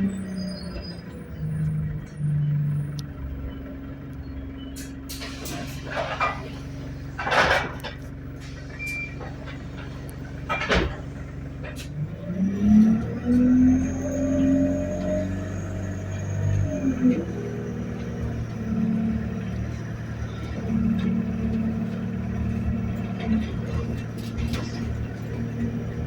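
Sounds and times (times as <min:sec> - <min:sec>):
bus diesel engine: 0:00.0 - 0:26.0
air brake hissing: 0:04.8 - 0:07.0, 0:08.4 - 0:09.6.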